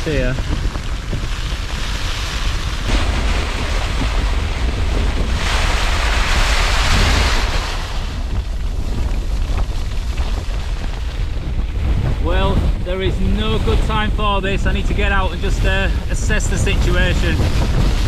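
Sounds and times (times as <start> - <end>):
strong wind against tent: 0.0 - 18.0
wind buffeting microphone: 0.0 - 18.0.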